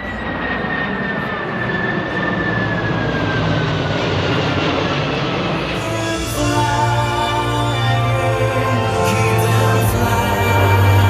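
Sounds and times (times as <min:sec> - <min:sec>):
jet aircraft flying past: 0:00.0 - 0:09.9
high turbine whine: 0:00.0 - 0:11.0.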